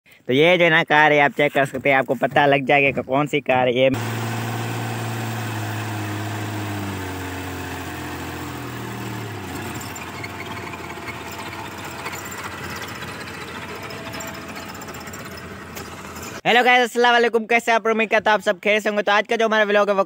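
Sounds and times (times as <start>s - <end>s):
small car engine running: 4.0s - 16.4s.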